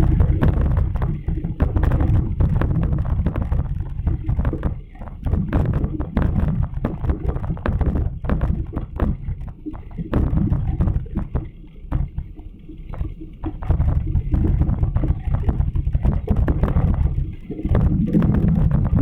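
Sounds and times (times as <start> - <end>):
wind buffeting microphone: 0.0 - 4.7
small knocks and rattles: 0.0 - 19.0.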